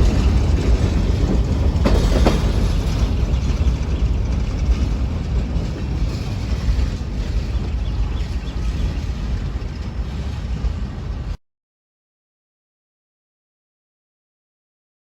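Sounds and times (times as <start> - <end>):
freight train wheels rumbling: 0.0 - 11.4.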